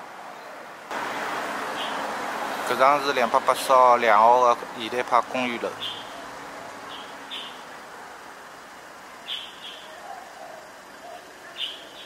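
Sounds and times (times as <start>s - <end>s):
street ambience hiss: 0.0s - 12.0s
small birds chirping: 1.7s - 2.1s, 5.4s - 7.8s, 8.8s - 12.0s.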